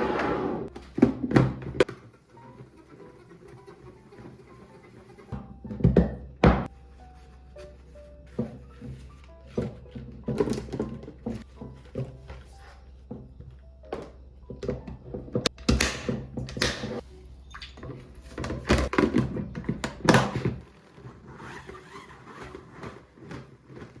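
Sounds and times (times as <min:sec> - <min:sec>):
knocks and thunks of containers: 0:00.7 - 0:02.1, 0:05.4 - 0:06.7, 0:08.4 - 0:12.4, 0:17.7 - 0:20.7.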